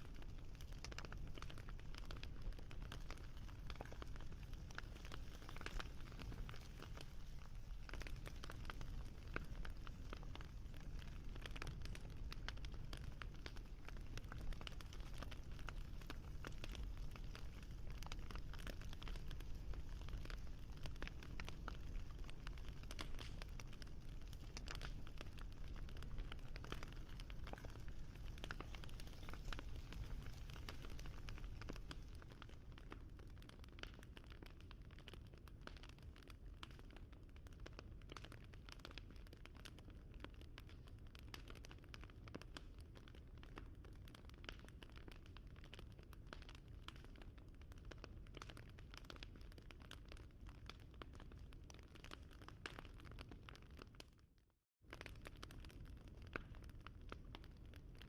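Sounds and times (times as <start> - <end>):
wood fire crackling: 0.0 - 54.0, 54.9 - 58.0.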